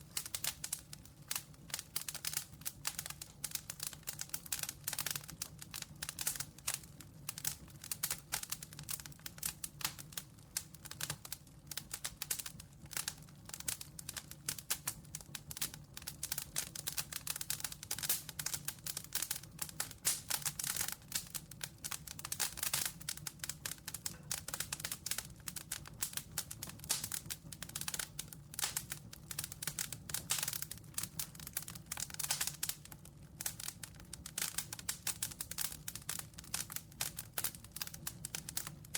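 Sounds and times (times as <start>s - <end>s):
campfire crackling: 0.0s - 38.9s.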